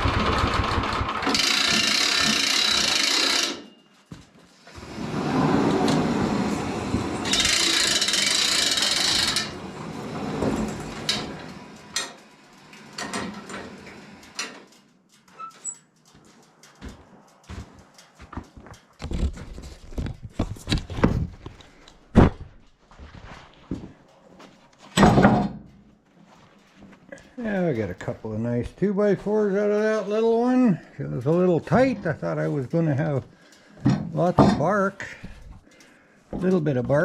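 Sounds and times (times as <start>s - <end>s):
band sawmill running: 0.0s - 3.7s, 4.6s - 14.6s.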